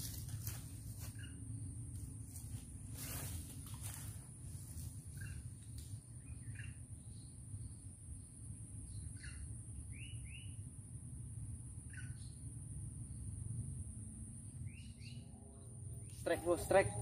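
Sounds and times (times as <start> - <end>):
steady low rumble: 0.0 - 17.0
bird chirps: 6.1 - 7.8, 8.8 - 10.6, 11.8 - 12.5, 14.6 - 17.0.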